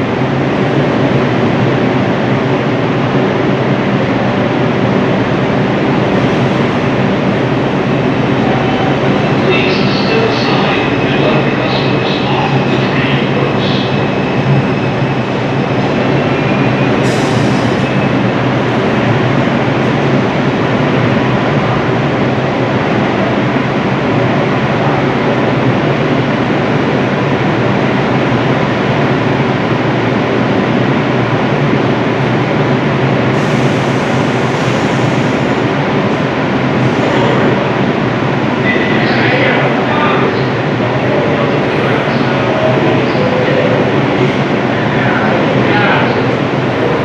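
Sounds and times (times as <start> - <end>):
train wheels on rail: 0.0 - 23.8, 25.6 - 38.6.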